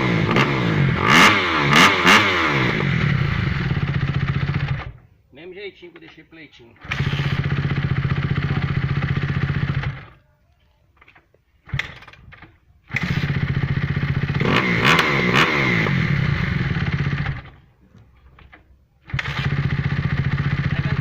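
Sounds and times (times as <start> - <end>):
motorcycle engine running: 0.0 - 5.0, 6.8 - 10.2, 12.8 - 17.7, 19.0 - 21.0.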